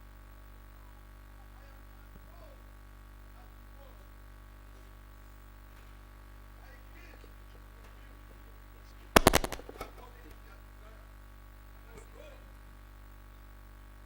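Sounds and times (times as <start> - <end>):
rapid sharp bangs: 9.2 - 9.9.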